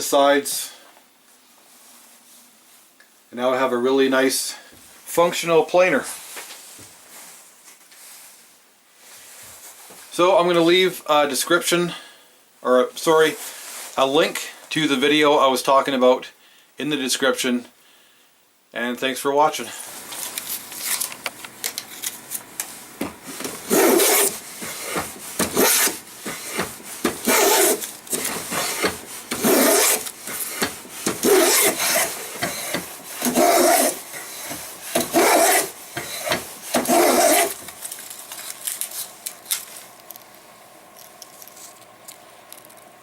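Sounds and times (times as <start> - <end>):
hand plane pushed along board: 23.0 - 37.7.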